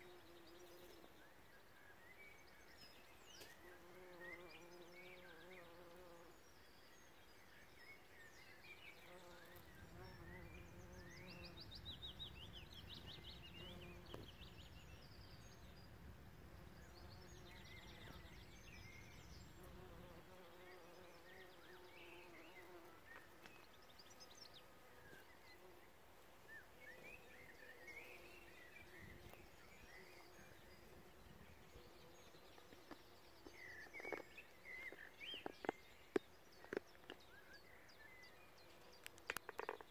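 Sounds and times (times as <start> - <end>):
birds chirping and trilling: 6.8 - 15.9.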